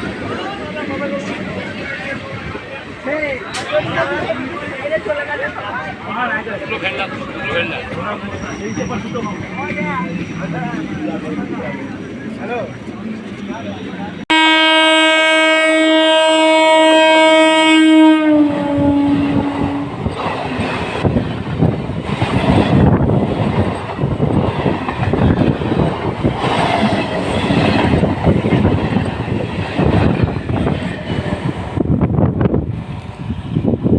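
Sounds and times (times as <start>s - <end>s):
train rumble and wheel clatter: 0.0s - 33.9s
train horn blast: 14.3s - 20.0s.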